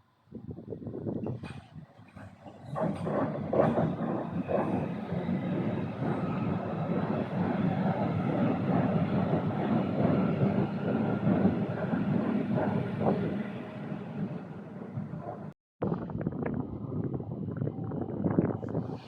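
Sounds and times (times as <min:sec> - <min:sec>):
train wheels rumbling: 0:01.4 - 0:15.5.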